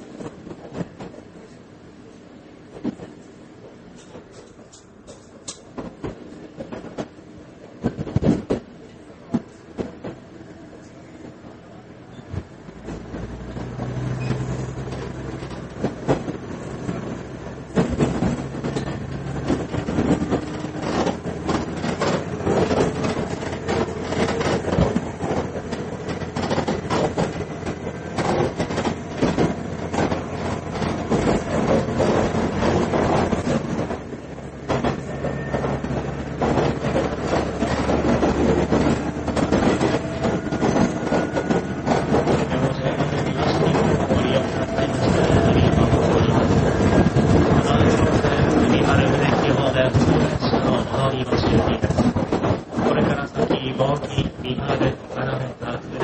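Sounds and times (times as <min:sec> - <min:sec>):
railcar engine drone: 0:00.0 - 0:56.0
train rolling noise: 0:00.0 - 0:56.0
wheels clicking over rail joints: 0:12.7 - 0:56.0.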